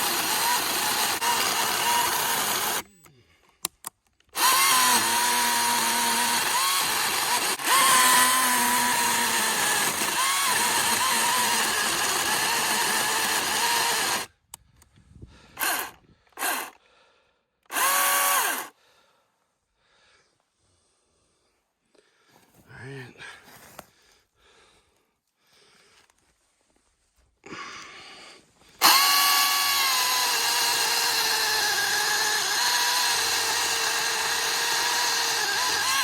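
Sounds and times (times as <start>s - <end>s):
electric chainsaw cutting wood: 0.0s - 2.9s, 4.3s - 14.3s, 15.6s - 16.8s, 17.7s - 18.7s, 28.8s - 36.0s.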